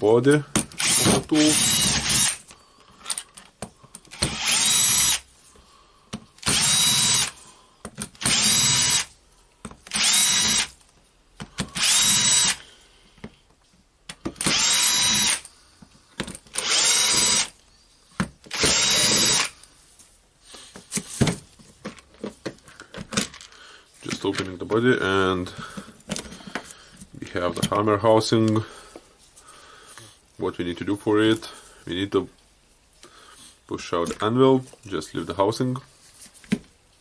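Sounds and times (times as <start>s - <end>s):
power screwdriver whining: 0.7s - 2.5s, 4.1s - 5.3s, 6.4s - 7.3s, 8.2s - 9.1s, 9.8s - 10.7s, 11.6s - 12.6s, 14.4s - 15.5s, 16.5s - 17.6s, 18.5s - 19.6s.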